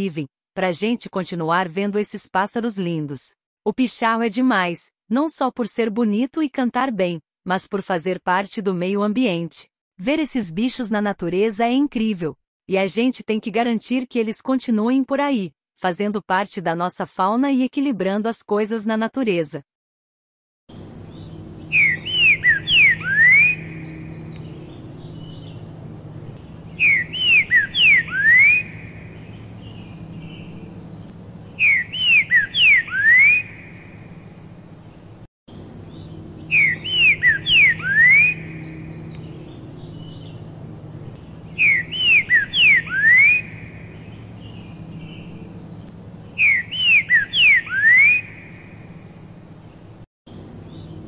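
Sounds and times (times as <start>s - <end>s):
bird whistled song: 21.1s - 25.8s, 26.4s - 34.0s, 35.9s - 40.6s, 41.2s - 48.8s.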